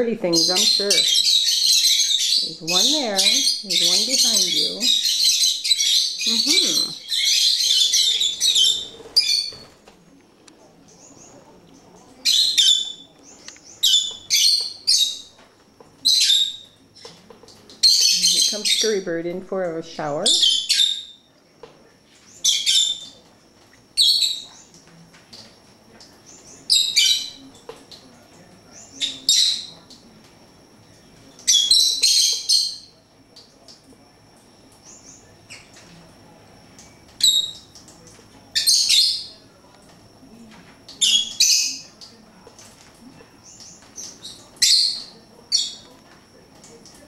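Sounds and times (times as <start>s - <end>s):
pet birds chirping: 0.0s - 9.8s, 10.7s - 15.4s, 16.0s - 19.2s, 20.0s - 21.3s, 22.2s - 23.2s, 23.8s - 24.8s, 26.2s - 27.5s, 28.6s - 30.0s, 31.3s - 33.0s, 37.1s - 37.8s, 38.5s - 39.4s, 40.9s - 42.2s, 43.4s - 46.0s.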